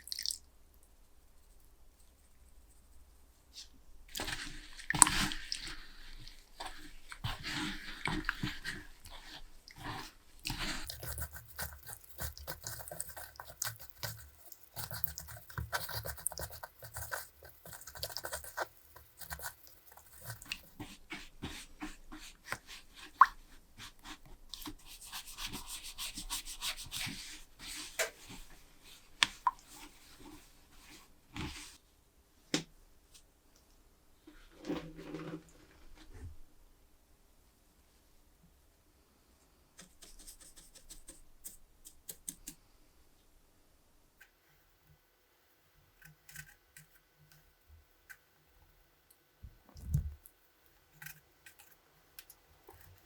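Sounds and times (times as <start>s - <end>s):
irregular scraping and rubbing: 3.6s - 23.2s, 34.2s - 36.4s.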